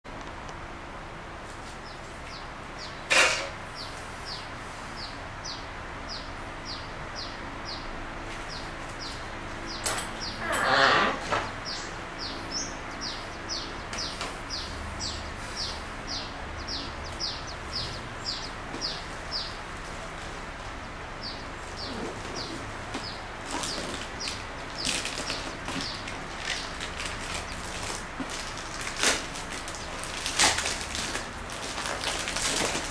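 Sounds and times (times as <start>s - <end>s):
bird chirping: 3.7s - 19.7s, 20.7s - 27.7s
plastic wrapping rustling: 21.6s - 32.9s.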